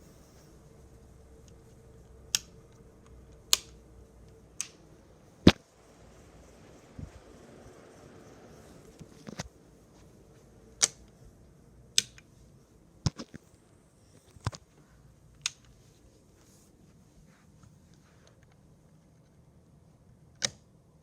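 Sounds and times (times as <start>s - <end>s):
faint steady background noise: 0.0s - 21.0s
sharp clicks: 2.3s - 5.6s, 10.7s - 11.2s, 11.9s - 12.3s, 15.4s - 15.8s.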